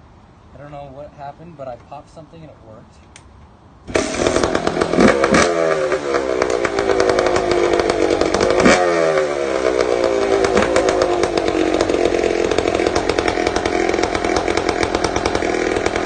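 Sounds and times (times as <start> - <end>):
two-stroke motorcycle engine idling: 3.9 - 16.0.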